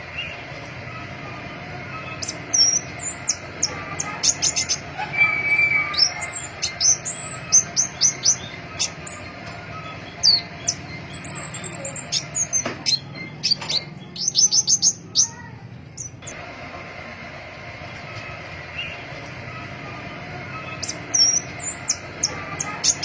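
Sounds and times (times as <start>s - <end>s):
bird calling high sharp notes: 1.5s - 16.4s, 19.6s - 23.0s.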